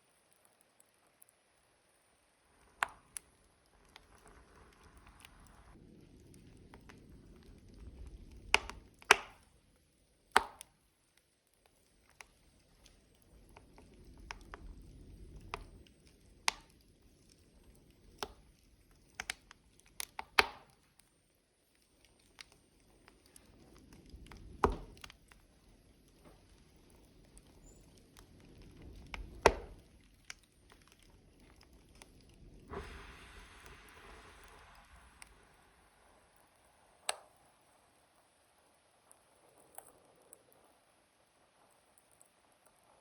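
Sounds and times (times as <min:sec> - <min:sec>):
burning logs crackling: 0:00.0 - 0:42.9
loud sharp pops: 0:08.5 - 0:09.4.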